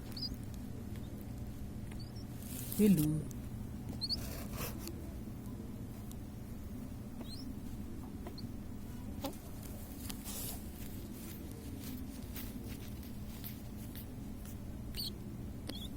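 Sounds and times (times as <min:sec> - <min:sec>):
young pigeon squeaking: 0:00.0 - 0:01.2, 0:01.9 - 0:02.8, 0:03.9 - 0:04.8, 0:07.2 - 0:07.6, 0:08.2 - 0:08.6, 0:14.9 - 0:15.9.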